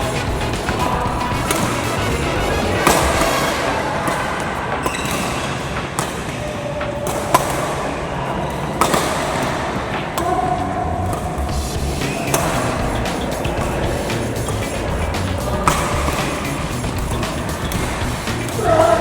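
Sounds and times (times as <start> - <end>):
background music: 0.0 - 7.5, 9.8 - 19.0
racket hitting shuttlecock: 0.0 - 7.8, 8.5 - 19.0.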